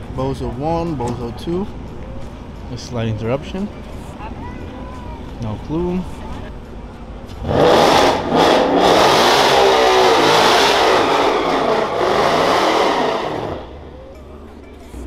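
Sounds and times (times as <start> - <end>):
race car engines revving: 0.0 - 15.0.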